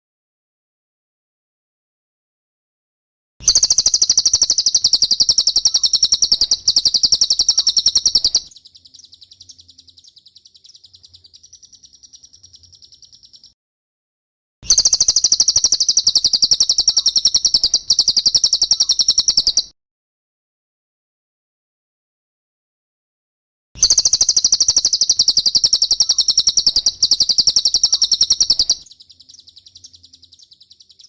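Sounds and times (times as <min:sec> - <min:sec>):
bird trilling rapidly: 0:03.4 - 0:13.6, 0:14.7 - 0:19.7, 0:23.8 - 0:31.0.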